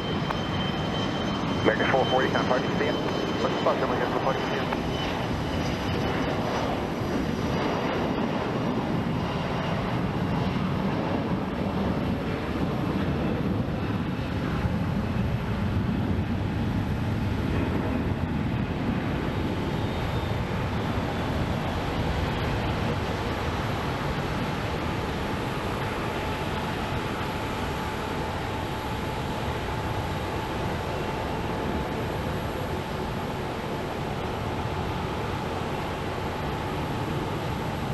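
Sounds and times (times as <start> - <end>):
faint high whine: 0.0 - 6.3
jet engines rumbling at takeoff: 0.0 - 37.9.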